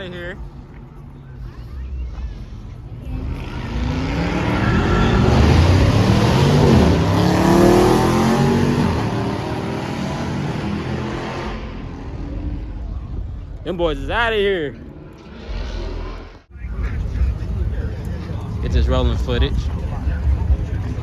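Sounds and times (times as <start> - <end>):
car engine accelerating past: 2.8 - 13.2.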